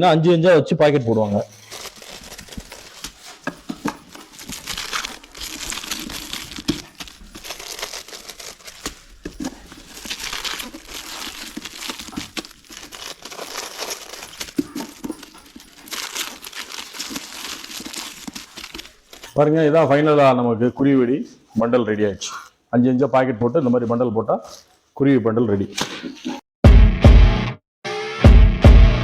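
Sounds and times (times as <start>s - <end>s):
paper rustling and crinkling: 1.2s - 20.2s.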